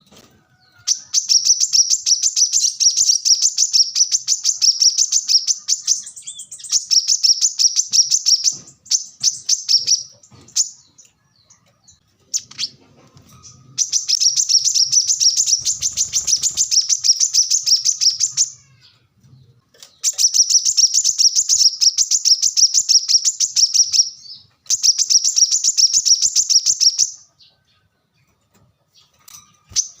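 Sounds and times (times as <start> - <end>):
sunbird twittering: 13.5 - 18.7.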